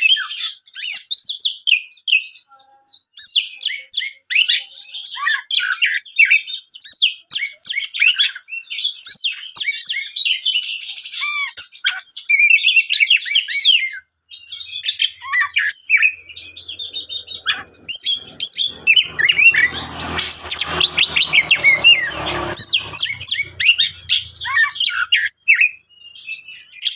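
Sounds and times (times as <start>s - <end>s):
rush of noise: 16.2s - 24.8s.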